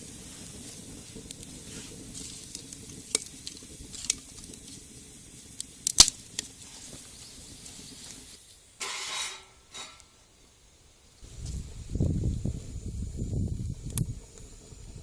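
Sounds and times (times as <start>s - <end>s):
rustling scrape: 1.6s - 2.5s, 8.8s - 10.0s.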